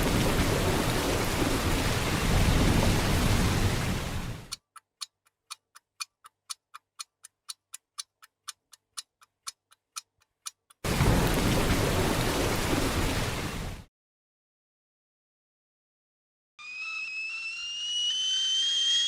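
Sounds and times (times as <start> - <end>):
clock-like ticking: 4.5 - 10.9.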